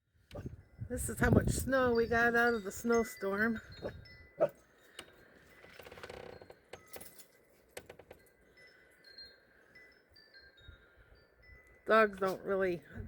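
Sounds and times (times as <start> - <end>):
faint metallic chiming: 1.7 - 13.0.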